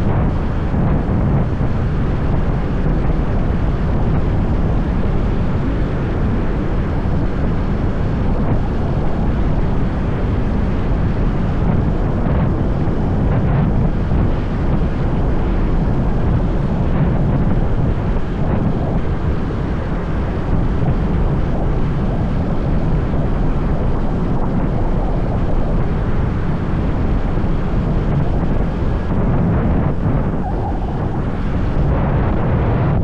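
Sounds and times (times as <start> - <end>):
road noise: 0.0 - 13.1, 21.1 - 33.0
wind buffeting microphone: 0.0 - 33.0.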